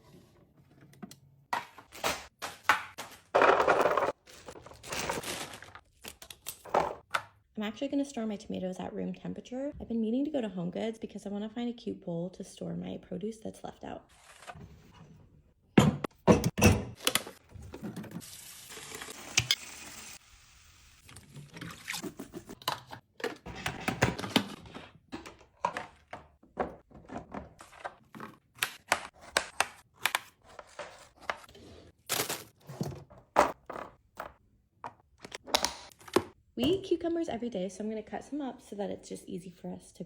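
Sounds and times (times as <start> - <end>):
containers clunking and tapping: 22.4 - 29.6.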